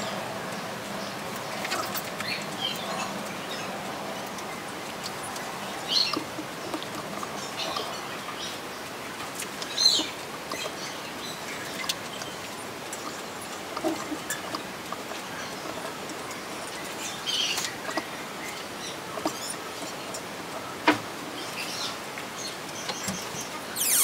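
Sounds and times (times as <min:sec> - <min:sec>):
small birds chirping: 0:21.4 - 0:24.0
steady background hiss: 0:23.6 - 0:24.0.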